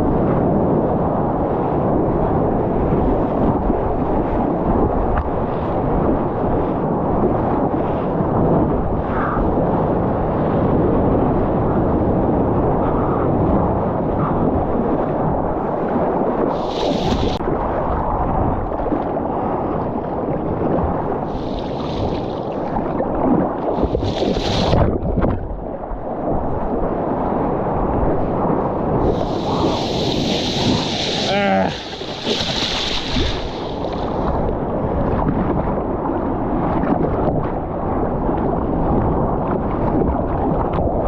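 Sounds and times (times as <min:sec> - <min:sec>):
wind and water buffeting microphone: 0:00.0 - 0:41.0.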